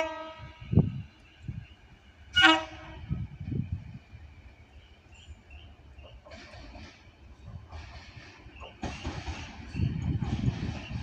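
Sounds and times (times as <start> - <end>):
train horn blasts: 0.0 - 0.9, 2.3 - 3.2.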